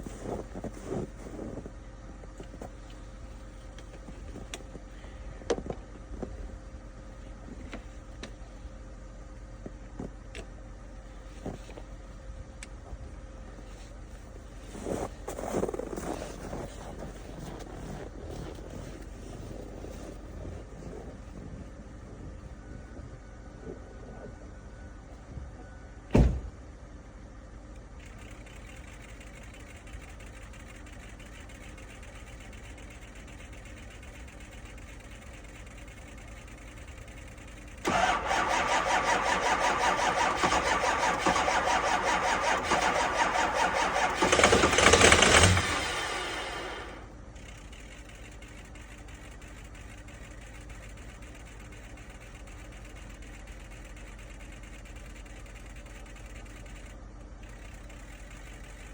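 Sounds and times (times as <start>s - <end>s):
diesel engine starter cranking: 14.6s - 20.2s, 28.0s - 58.9s
sharp thump: 26.1s - 26.5s.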